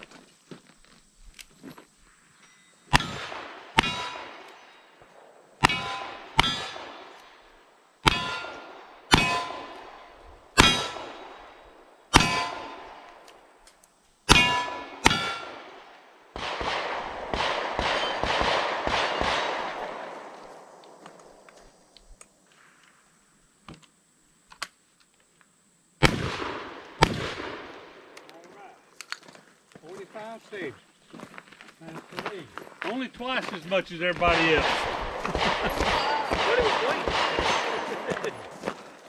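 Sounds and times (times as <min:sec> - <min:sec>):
steel target ringing: 0:02.5 - 0:05.0, 0:05.6 - 0:07.2, 0:08.0 - 0:13.1, 0:14.3 - 0:15.8, 0:17.7 - 0:18.4, 0:34.2 - 0:37.9.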